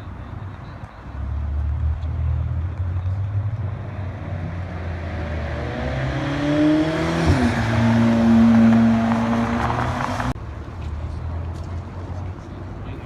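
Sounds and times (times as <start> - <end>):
car engine accelerating: 1.4 - 10.4.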